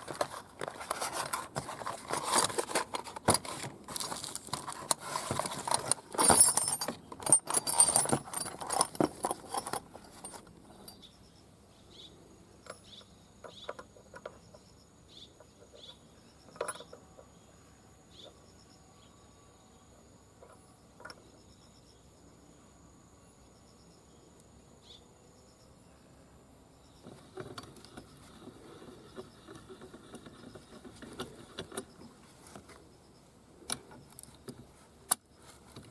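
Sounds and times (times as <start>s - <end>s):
metallic clinks of tools: 5.4s - 11.1s.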